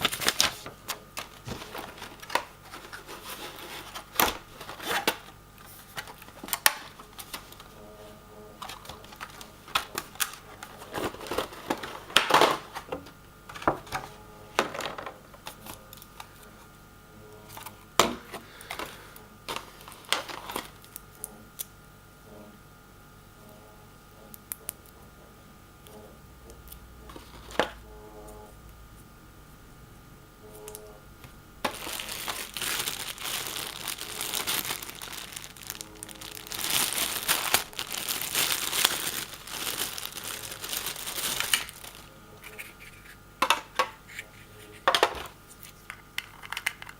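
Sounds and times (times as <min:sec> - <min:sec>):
plastic and cardboard packaging crinkling: 0:00.0 - 0:16.5, 0:17.5 - 0:21.1, 0:31.6 - 0:46.9.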